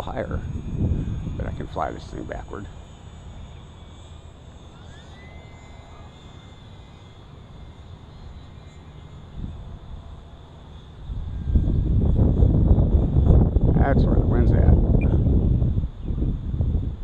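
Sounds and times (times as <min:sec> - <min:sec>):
wind gusts on microphone: 0:00.0 - 0:02.8, 0:11.0 - 0:17.0
small electric motor whine: 0:00.0 - 0:17.0.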